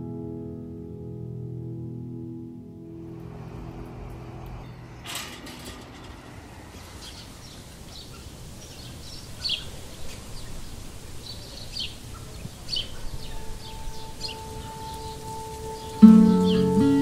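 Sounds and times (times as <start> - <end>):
low outdoor rumble: 2.8 - 9.0
small birds chirping: 3.1 - 17.0.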